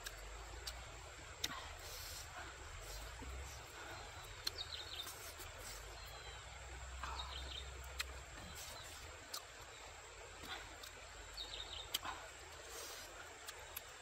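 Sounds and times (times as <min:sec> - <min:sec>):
faint outdoor background noise: 0:00.0 - 0:14.0
bird chirping: 0:02.8 - 0:13.6.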